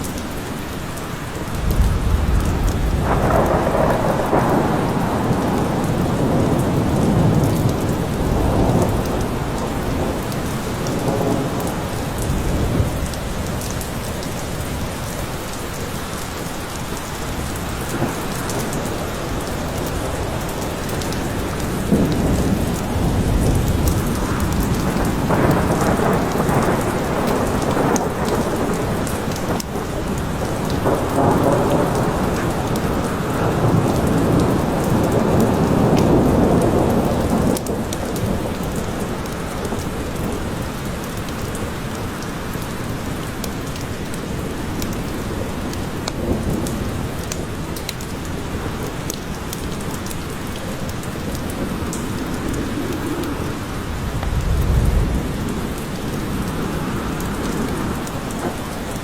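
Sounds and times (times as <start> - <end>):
rain hissing: 0.0 - 59.0
raindrop ticks: 0.0 - 59.0
thunder rumbling: 1.5 - 14.1, 17.3 - 40.8, 50.5 - 59.0.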